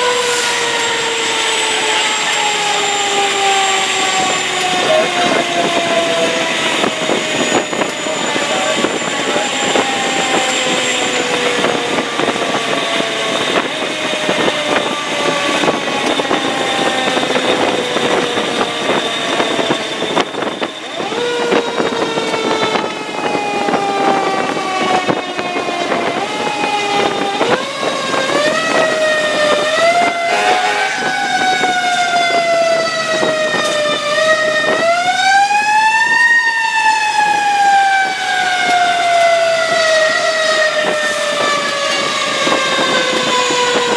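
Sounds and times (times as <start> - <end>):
engine and road noise: 0.0 - 43.9
mechanical siren wailing: 0.0 - 43.9.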